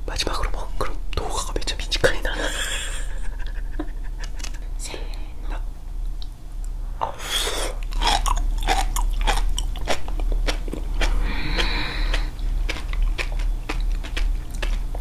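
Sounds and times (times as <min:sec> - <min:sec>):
people chewing popping seaweed: 0:07.3 - 0:15.0.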